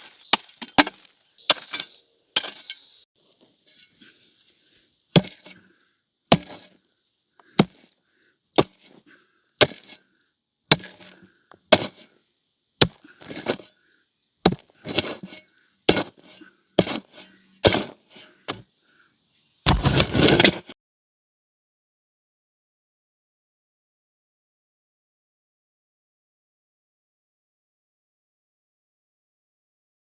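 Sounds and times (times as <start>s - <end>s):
hand tool chopping: 0.3s - 1.8s, 6.3s - 6.7s, 7.5s - 7.8s, 10.7s - 11.0s, 19.7s - 20.6s
short rasp: 19.7s - 20.7s.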